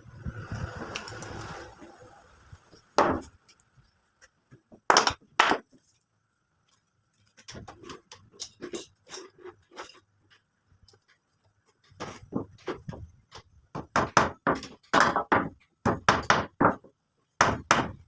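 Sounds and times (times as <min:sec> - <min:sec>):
light taps and scrapes: 0:06.6 - 0:13.1.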